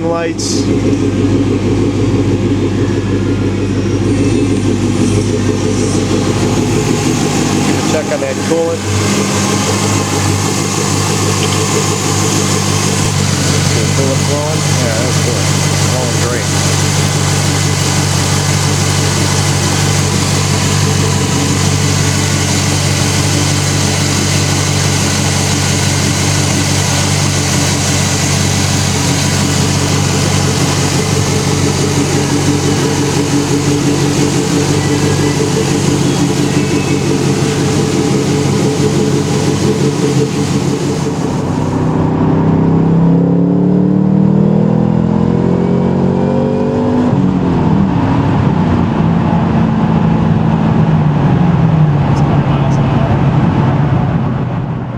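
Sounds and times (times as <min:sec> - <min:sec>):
car engine idling and revving: 0:00.0 - 0:54.9
supercharger hiss: 0:04.0 - 0:41.9.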